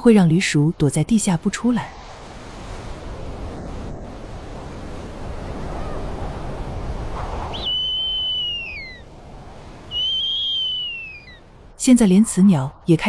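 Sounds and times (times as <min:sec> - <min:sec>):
wind: 0:00.0 - 0:13.0
owl whistled call: 0:07.5 - 0:09.1, 0:09.8 - 0:11.5.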